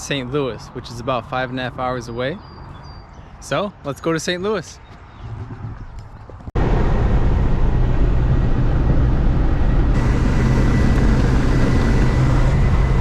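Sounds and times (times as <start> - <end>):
road noise: 0.0 - 13.0
car engine drone: 6.6 - 13.0
faint high whine: 10.0 - 13.0.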